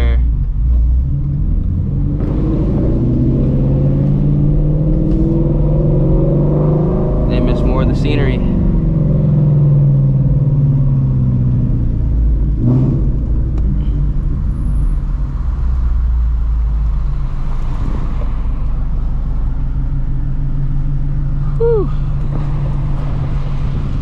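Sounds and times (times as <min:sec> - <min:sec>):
car engine droning: 0:00.0 - 0:24.0.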